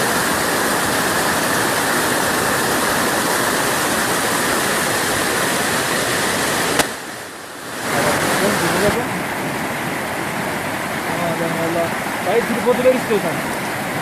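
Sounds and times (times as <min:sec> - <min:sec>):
waterfall roaring: 0:00.0 - 0:14.0
sharp click: 0:06.8 - 0:07.0.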